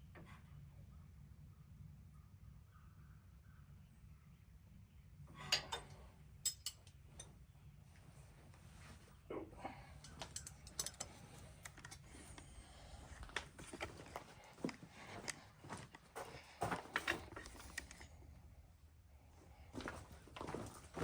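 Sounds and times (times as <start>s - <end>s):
hand tools clicking and tapping: 10.0s - 12.5s, 13.1s - 18.1s.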